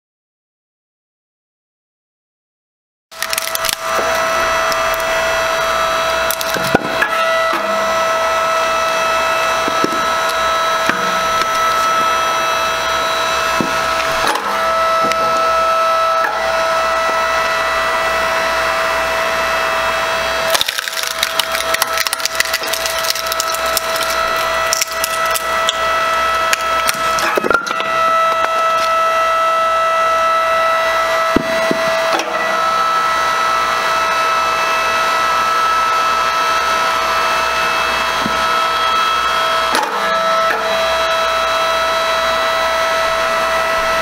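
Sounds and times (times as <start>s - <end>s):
wood cracking and splintering: 3.1s - 5.1s, 5.8s - 7.8s, 9.6s - 12.2s, 20.4s - 25.8s, 26.4s - 29.0s
log splitter motor whining: 3.1s - 44.0s.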